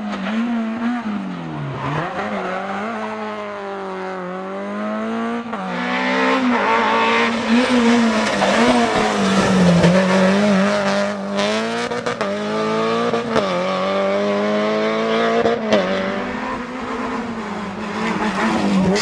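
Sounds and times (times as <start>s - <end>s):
rally car engine revving hard: 0.2s - 19.0s.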